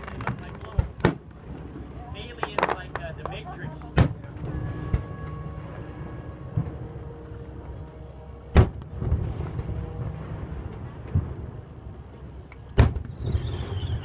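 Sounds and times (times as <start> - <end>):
low rumble: 0.0 - 14.0
firework bang: 8.5 - 11.5, 12.8 - 14.0.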